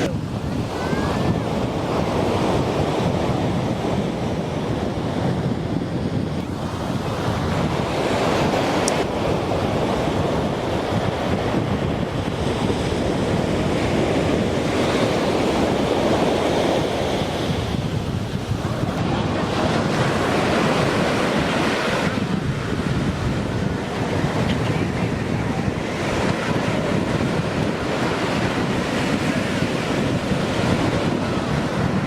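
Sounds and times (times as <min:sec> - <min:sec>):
surf breaking on beach: 0:00.0 - 0:32.0
wind buffeting microphone: 0:00.0 - 0:32.0.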